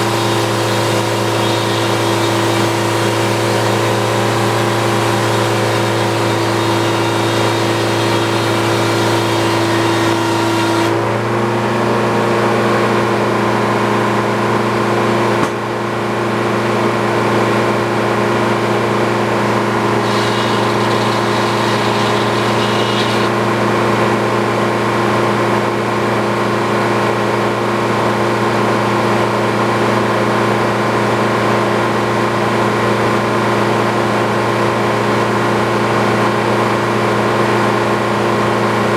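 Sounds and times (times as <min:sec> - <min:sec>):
sawmill engine running: 0:00.0 - 0:11.4, 0:15.1 - 0:24.4.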